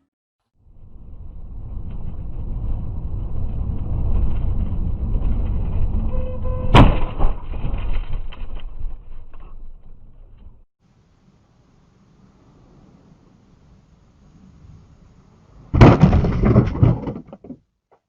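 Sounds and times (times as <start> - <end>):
car road and engine rumble: 0.6 - 6.9, 10.1 - 15.8
vehicle collision bang: 6.6 - 8.2, 15.7 - 17.5.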